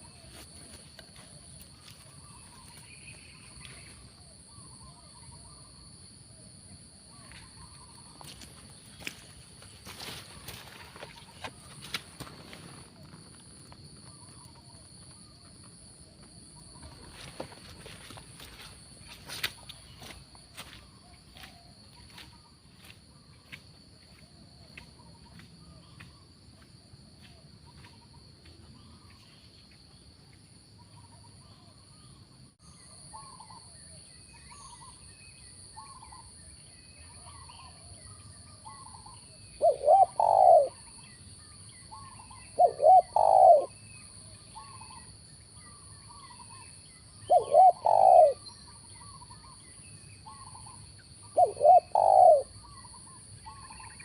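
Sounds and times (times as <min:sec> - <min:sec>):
faint bird chirping: 0:00.0 - 0:54.0
dove cooing: 0:39.6 - 0:40.9, 0:42.0 - 0:43.8, 0:47.2 - 0:48.4, 0:51.3 - 0:52.8.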